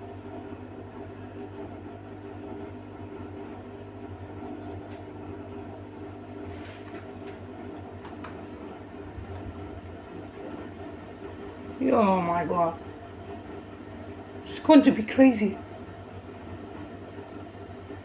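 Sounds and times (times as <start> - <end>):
washing machine motor humming: 0.0 - 18.0.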